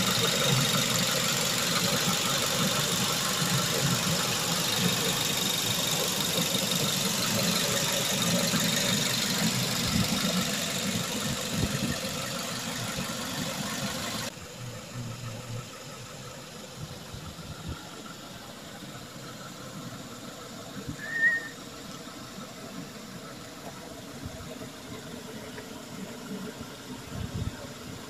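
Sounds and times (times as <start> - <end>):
car engine idling: 0.0 - 28.0
short high chirp: 21.0 - 21.6.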